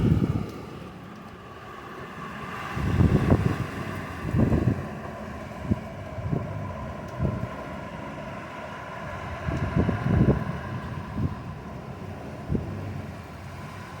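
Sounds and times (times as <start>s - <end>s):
wind grumbling: 0.0s - 14.0s
wind gusts buffeting microphone: 0.0s - 14.0s.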